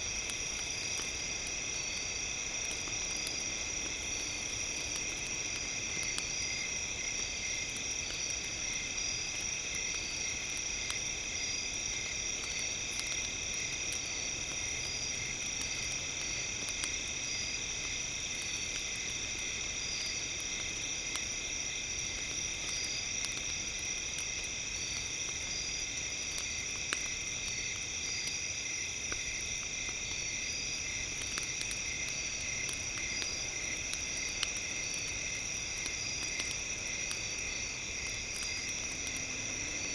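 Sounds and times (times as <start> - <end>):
campfire crackling: 0.0 - 39.9
insects and frogs calling: 0.0 - 39.9.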